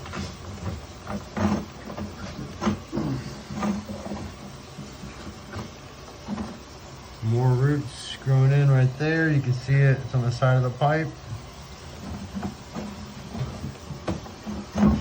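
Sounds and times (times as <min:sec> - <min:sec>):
cable knocking and scraping in pipe: 0:00.0 - 0:06.6, 0:11.4 - 0:15.0
low steady hum: 0:00.0 - 0:15.0.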